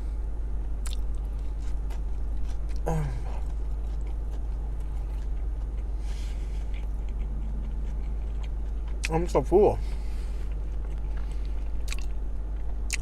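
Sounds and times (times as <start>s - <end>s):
low hum inside car: 0.0s - 13.0s
person chewing: 0.6s - 13.0s
mouth clicks and lip smacks: 0.8s - 1.1s, 11.8s - 12.2s
person humming mm: 2.8s - 3.4s.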